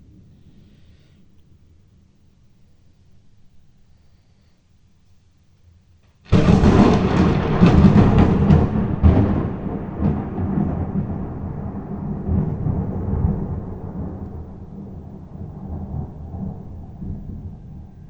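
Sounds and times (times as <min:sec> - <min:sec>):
thunder: 0:06.3 - 0:18.0.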